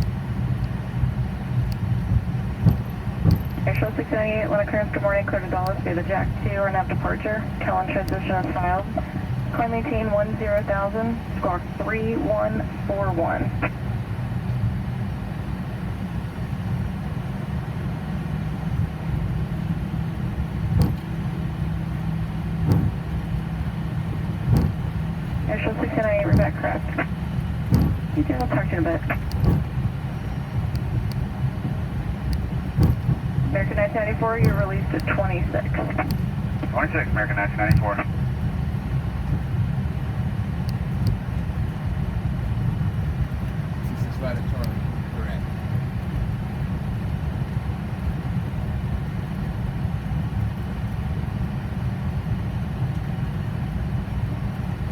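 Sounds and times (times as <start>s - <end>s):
aircraft engines rumbling: 0.0s - 54.9s
faint ticks: 29.2s - 29.6s.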